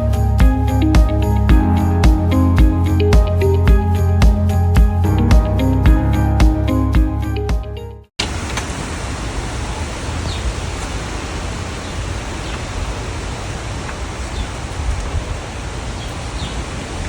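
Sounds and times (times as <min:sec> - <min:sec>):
strong wind blowing: 0:08.8 - 0:17.0
wind buffeting microphone: 0:09.9 - 0:17.0.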